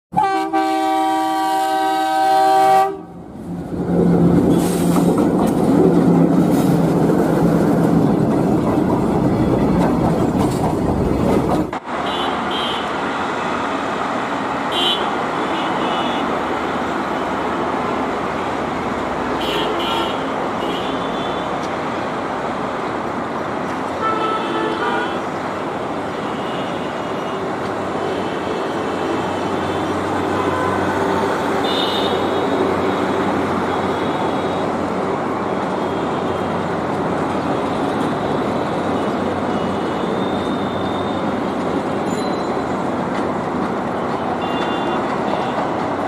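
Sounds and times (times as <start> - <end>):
locomotive horn chord: 0.1 - 3.2
train rolling by: 0.2 - 46.0.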